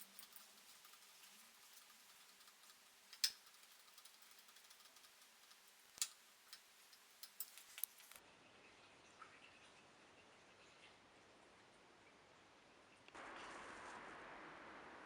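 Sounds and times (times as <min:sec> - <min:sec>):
faint background hiss: 0:00.0 - 0:08.6.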